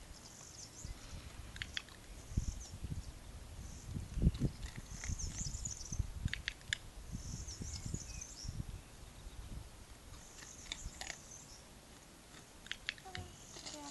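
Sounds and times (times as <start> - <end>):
small birds twittering: 0.0 - 11.7, 12.4 - 13.9
sharp clicks: 1.5 - 2.0, 6.2 - 6.8, 12.3 - 13.3.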